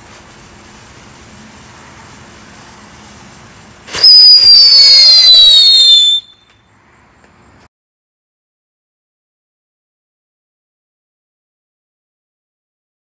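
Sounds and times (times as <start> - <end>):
whistling firework: 3.8 - 6.7.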